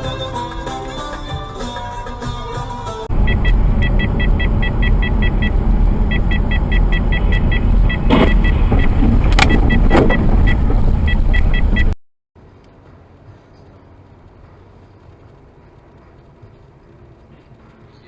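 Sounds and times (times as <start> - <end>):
car road and engine noise: 0.0 - 18.0
rapid high ticking: 3.1 - 8.6.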